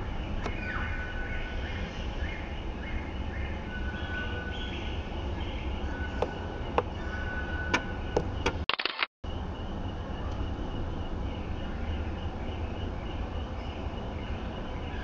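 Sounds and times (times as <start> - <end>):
birds whistling and chirping: 0.0 - 8.6, 9.3 - 15.0
sharp clicks: 8.4 - 9.1
steady low rumble: 9.2 - 15.0.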